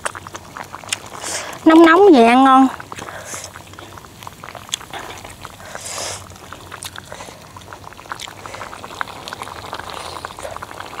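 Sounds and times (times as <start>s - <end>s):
broth simmering: 0.0s - 11.0s
short hiss: 5.7s - 6.3s.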